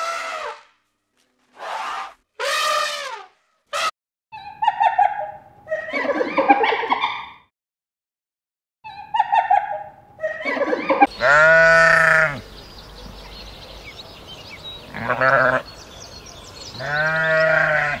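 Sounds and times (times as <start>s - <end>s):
farm animal bleating: 11.1s - 12.4s, 14.9s - 15.7s, 16.7s - 18.0s.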